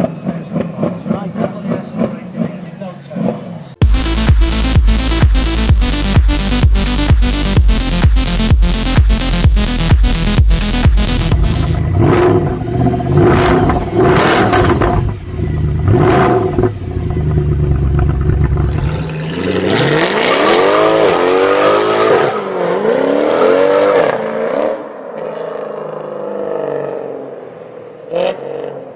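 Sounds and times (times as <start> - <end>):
car exhaust rumbling and revving: 9.5 - 21.9.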